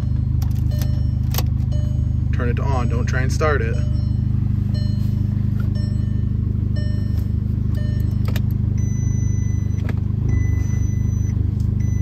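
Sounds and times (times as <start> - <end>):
higher chime tone: 0.0 - 8.2
car engine idling: 0.0 - 12.0
dashboard chime beeping: 0.0 - 12.0.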